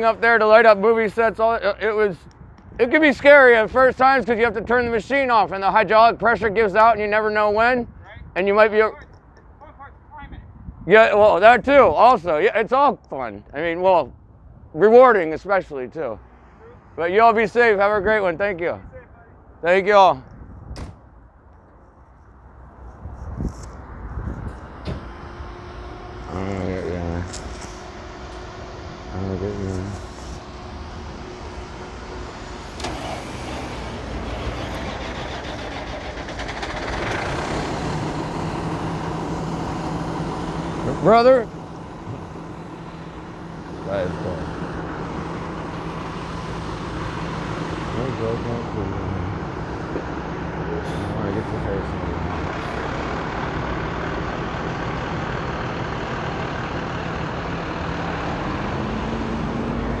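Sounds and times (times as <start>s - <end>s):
steady low hum: 21.5s - 36.6s
truck engine running: 21.6s - 60.0s.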